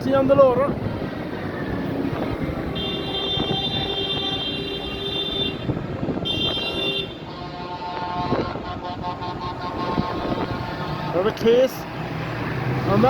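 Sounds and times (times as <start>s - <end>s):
tractor engines running: 7.0s - 13.0s.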